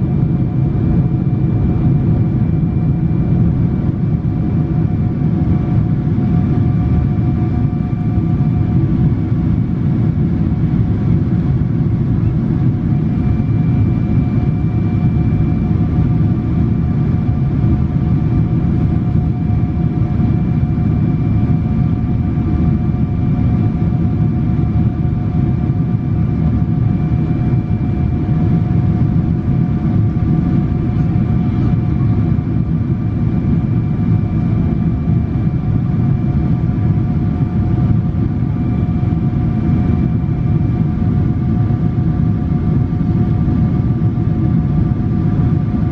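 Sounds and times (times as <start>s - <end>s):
airplane engine and airflow roar: 0.0s - 45.9s
faint engine whine: 0.0s - 45.9s.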